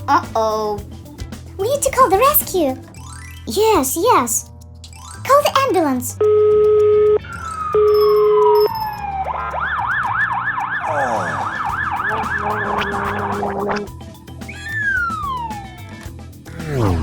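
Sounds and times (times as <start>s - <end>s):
telephone ringing tones: 6.2s - 9.1s
ambulance siren warbling: 6.9s - 15.9s
falling tone: 7.3s - 15.8s.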